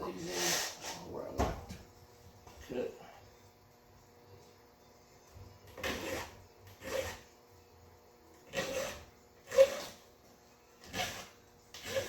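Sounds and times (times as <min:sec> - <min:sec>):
file rasping on chainsaw chain: 0:05.8 - 0:07.2, 0:08.5 - 0:10.0, 0:10.8 - 0:12.0.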